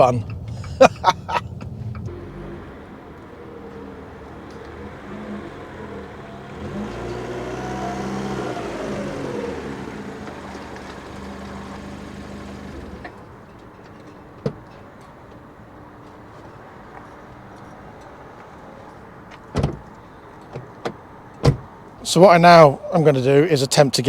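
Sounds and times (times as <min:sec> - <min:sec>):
car engine revving: 0:00.0 - 0:13.3.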